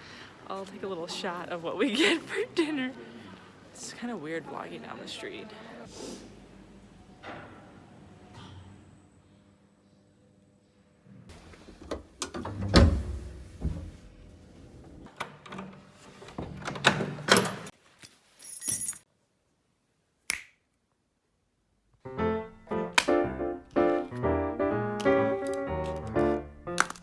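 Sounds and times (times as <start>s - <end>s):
background piano music: 22.0s - 27.0s.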